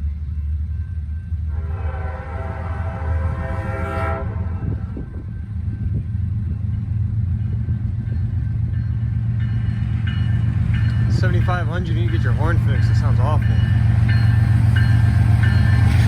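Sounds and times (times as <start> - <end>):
low rumble of freight train: 0.0 - 16.0
locomotive horn blowing: 1.5 - 5.3.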